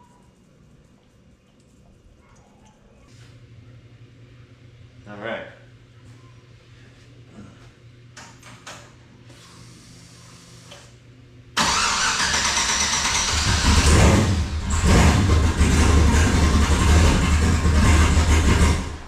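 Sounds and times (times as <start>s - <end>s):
race car engine starting and rumbling: 11.6s - 19.0s.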